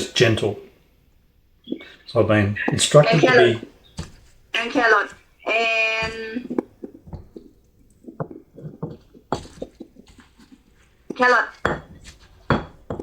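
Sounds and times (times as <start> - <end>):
pestle knocking in a mortar: 2.7 - 4.4, 6.0 - 13.0.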